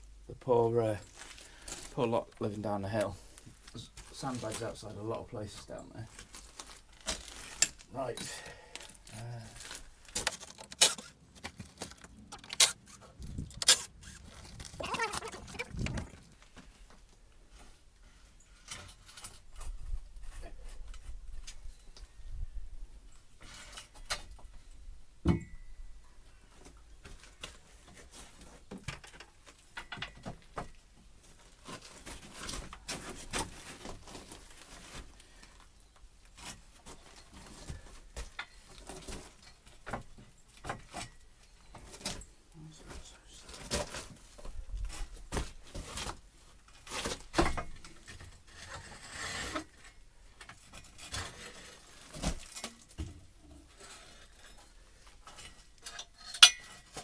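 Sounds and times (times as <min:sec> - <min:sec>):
timber knocking and scraping: 0:10.2 - 0:16.4.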